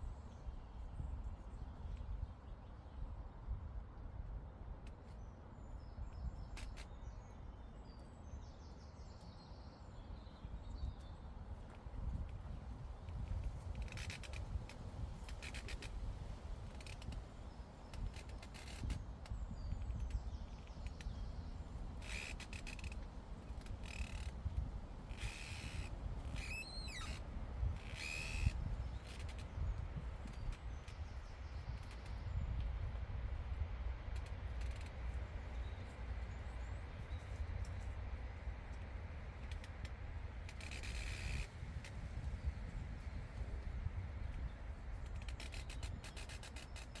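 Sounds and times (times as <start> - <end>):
wind rumble on microphone: 0.0 - 47.0
faint birdsong: 4.3 - 47.0.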